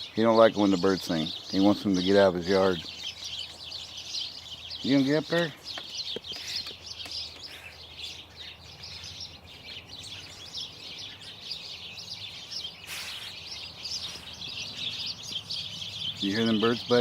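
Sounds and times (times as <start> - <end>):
flock of small birds chirping: 0.0 - 17.0
burst of hiss-like noise: 12.8 - 14.4.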